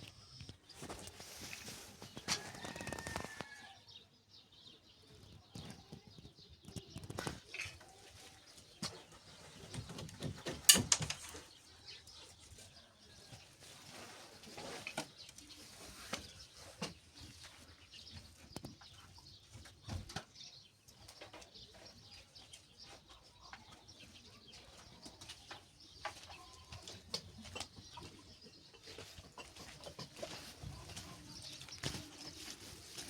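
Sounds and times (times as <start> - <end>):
sharp clicks and knocks: 10.1 - 11.3.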